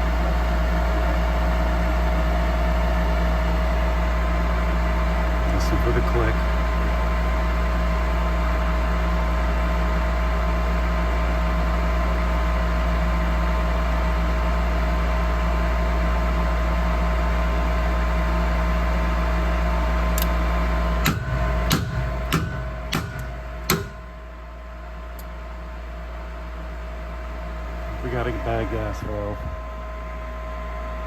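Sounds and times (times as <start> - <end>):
furnace humming: 17.6 - 31.0
screwdriver tapping metal valve: 21.0 - 24.1.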